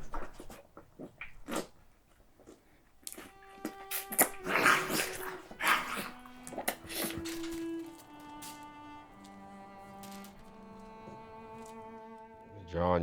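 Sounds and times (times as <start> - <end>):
sustained bowed-string music: 3.0 - 13.0
animal-like growls and snarls: 4.2 - 7.4.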